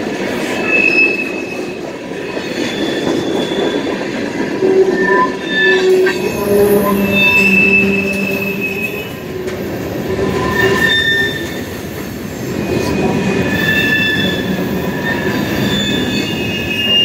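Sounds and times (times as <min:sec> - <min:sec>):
freight train wheels rumbling: 0:00.0 - 0:17.0
wheels squealing: 0:04.6 - 0:11.8, 0:12.5 - 0:17.0.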